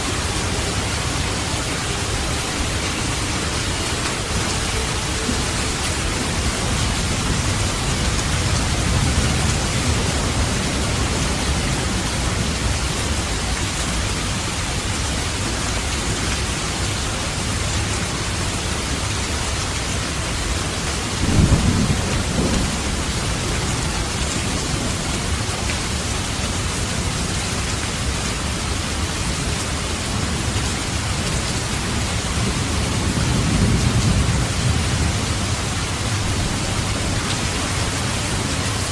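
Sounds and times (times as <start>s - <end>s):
heavy rain falling: 0.0s - 38.9s
thunder rumbling: 21.1s - 25.4s, 32.4s - 38.1s.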